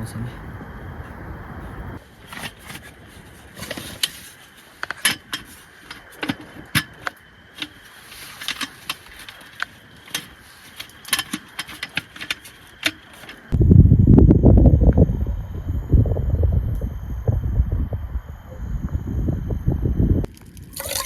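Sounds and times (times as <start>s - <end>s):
wind rumble on microphone: 0.0s - 2.2s, 13.5s - 21.0s.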